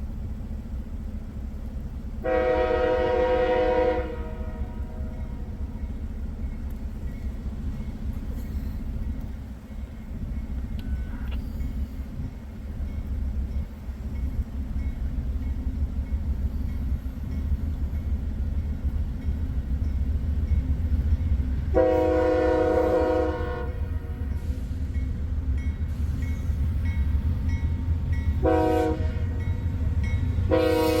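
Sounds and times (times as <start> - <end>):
diesel locomotives rumbling: 0.0 - 31.0
locomotive air horn: 2.2 - 5.4, 21.7 - 24.6, 28.4 - 29.4, 30.4 - 31.0.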